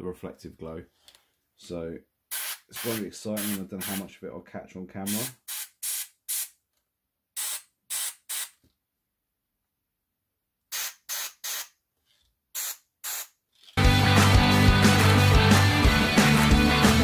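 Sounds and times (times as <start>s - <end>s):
airbrush spraying hiss: 5.1s - 6.5s, 10.7s - 11.7s, 12.6s - 13.3s
loud music: 13.8s - 17.0s.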